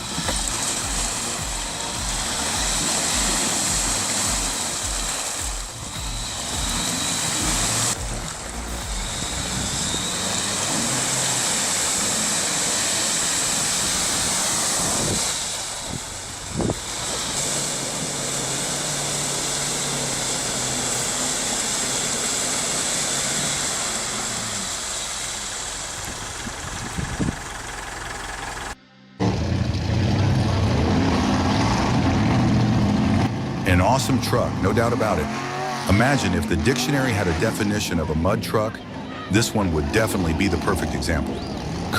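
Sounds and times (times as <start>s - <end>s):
hissing noise: 0.0s - 27.4s
truck engine running under load: 0.0s - 41.9s.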